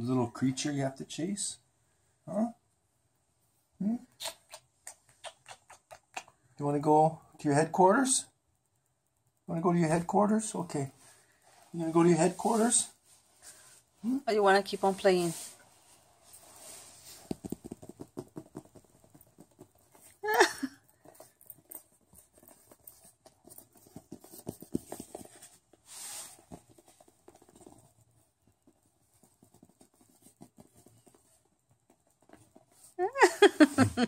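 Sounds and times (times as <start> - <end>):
small taps and scuffs on carpet: 16.6 - 20.2, 21.4 - 32.8.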